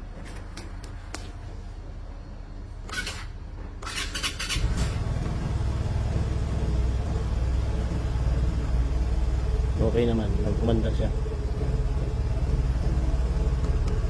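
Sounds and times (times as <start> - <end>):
scooter engine starting and idling: 2.8 - 14.0.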